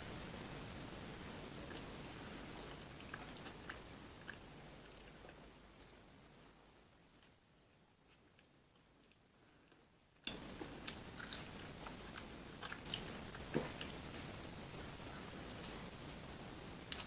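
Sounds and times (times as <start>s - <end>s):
background hiss: 0.0s - 17.0s
person chewing food: 1.6s - 6.1s, 7.1s - 17.0s
food crunching: 8.1s - 17.0s.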